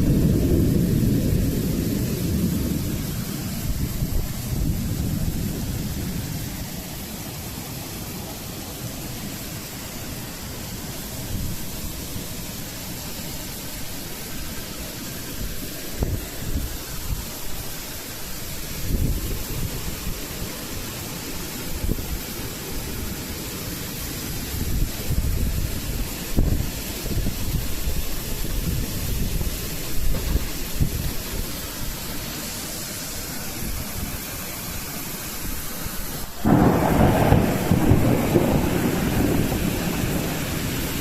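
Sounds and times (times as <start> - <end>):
wind buffeting microphone: 0.0 - 8.1, 10.6 - 34.8
strong wind gusting: 0.0 - 41.0.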